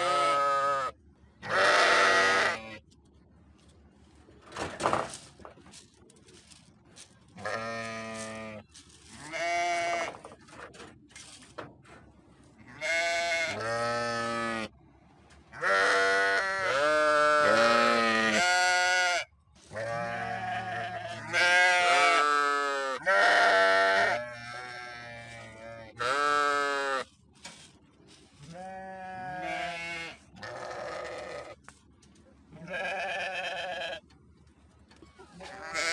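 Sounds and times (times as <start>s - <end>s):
sheep bleating: 0.0s - 2.8s, 7.4s - 8.6s, 9.2s - 10.1s, 12.7s - 14.7s, 15.6s - 27.1s, 28.4s - 31.6s, 32.6s - 34.0s, 35.4s - 35.9s.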